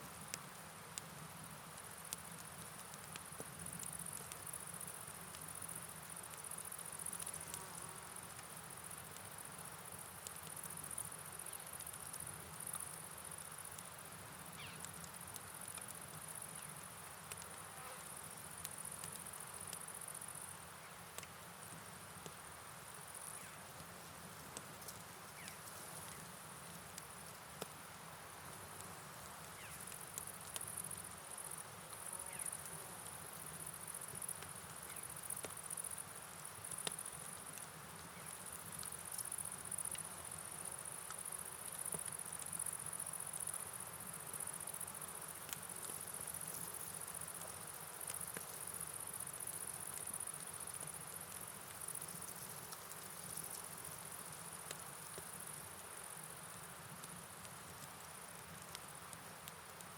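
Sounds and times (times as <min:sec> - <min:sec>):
rain hiss: 0:00.0 - 0:59.9
light ticks: 0:01.8 - 0:07.6, 0:14.6 - 0:17.6, 0:18.4 - 0:20.4, 0:21.2 - 0:21.4, 0:23.2 - 0:27.8, 0:28.5 - 0:32.8, 0:36.7 - 0:43.6, 0:44.6 - 0:48.7, 0:54.5 - 0:59.9
crickets chirping: 0:03.8 - 0:59.9.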